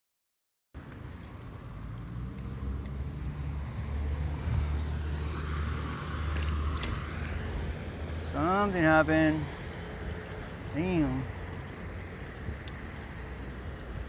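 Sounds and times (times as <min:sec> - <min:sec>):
high-pitched pulsing whine: 0:00.8 - 0:09.8
car engine and road rumble: 0:00.8 - 0:14.0.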